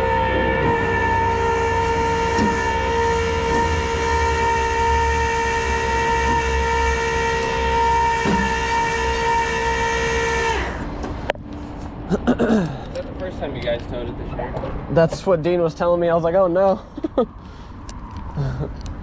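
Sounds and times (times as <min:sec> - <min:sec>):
train horn chord: 0:00.0 - 0:10.8.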